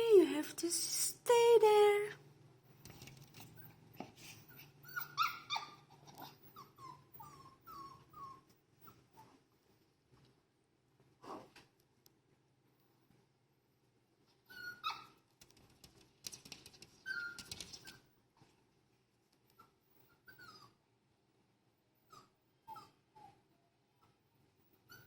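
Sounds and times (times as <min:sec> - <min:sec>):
puppy whimpering and whining: 0:04.5 - 0:09.4, 0:14.4 - 0:15.1, 0:19.6 - 0:20.8, 0:22.0 - 0:25.0.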